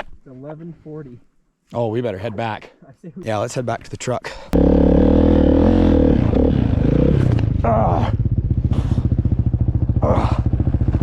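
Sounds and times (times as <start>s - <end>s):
dirt bike engine running: 4.6s - 11.0s.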